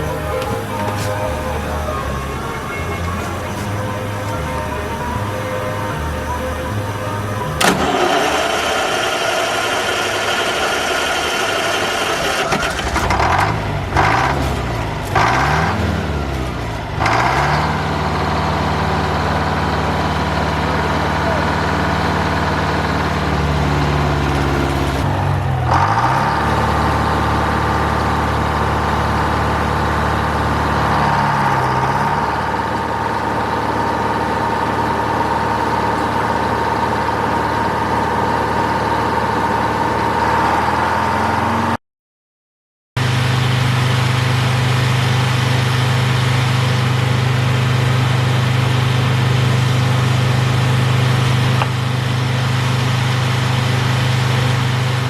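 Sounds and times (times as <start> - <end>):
high steady whine: 0.0 - 40.3
diesel engine running: 0.0 - 41.8, 43.0 - 55.0.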